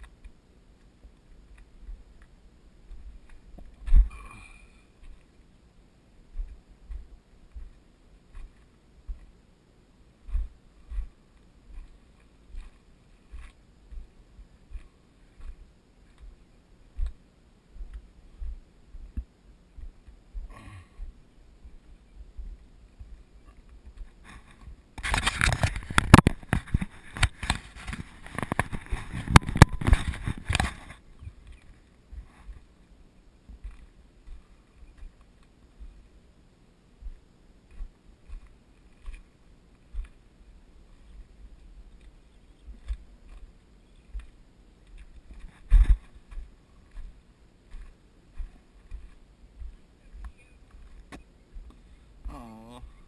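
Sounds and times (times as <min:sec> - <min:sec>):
footsteps on rock: 0:01.0 - 0:05.4, 0:06.3 - 0:09.4, 0:10.2 - 0:17.2, 0:17.8 - 0:32.8, 0:33.4 - 0:36.1, 0:37.0 - 0:40.3, 0:40.9 - 0:53.0
scraping and knocking on rock: 0:23.8 - 0:32.6.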